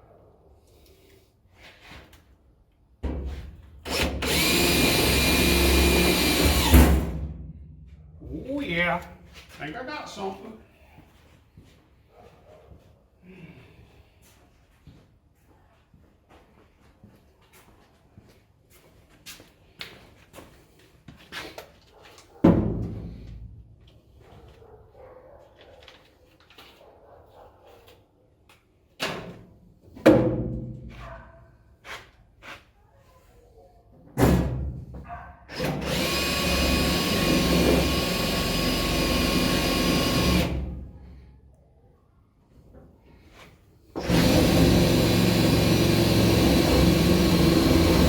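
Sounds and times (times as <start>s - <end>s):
power tool motor whining: 3.9s - 6.8s, 35.6s - 40.6s, 44.0s - 48.0s.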